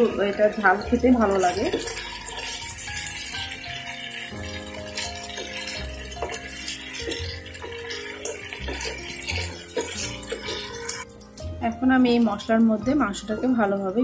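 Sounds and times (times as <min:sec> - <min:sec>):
wooden spatula scraping a pot: 0:00.0 - 0:11.1
chicken sizzling in hot oil: 0:00.0 - 0:14.0.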